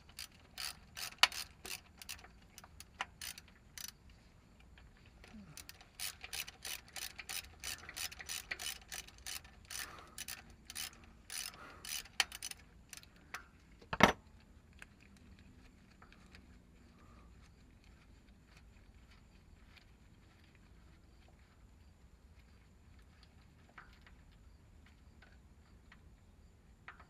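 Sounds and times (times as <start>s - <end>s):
ratchet wrench clicking: 0.0s - 4.0s, 5.2s - 14.2s.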